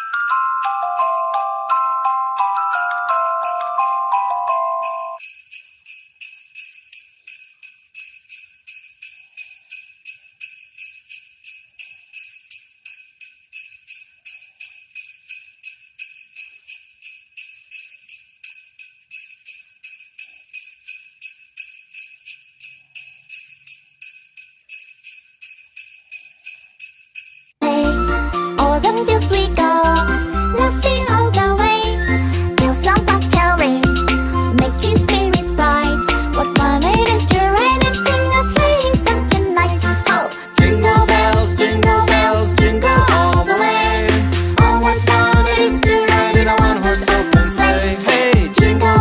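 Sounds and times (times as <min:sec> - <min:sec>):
sleigh bells jingling: 0:00.0 - 0:49.0.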